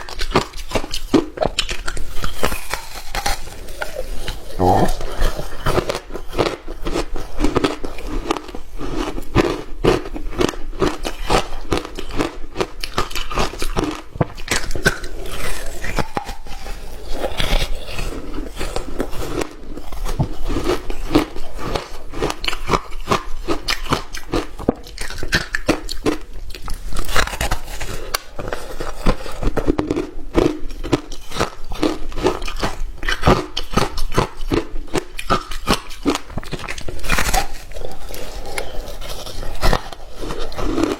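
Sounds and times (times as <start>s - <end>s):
ice being chewed: 0.0s - 40.9s.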